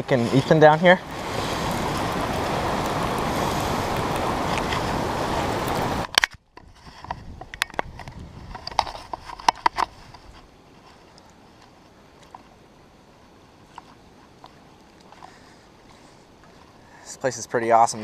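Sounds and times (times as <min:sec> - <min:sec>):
waterfall rushing: 0:00.2 - 0:06.1.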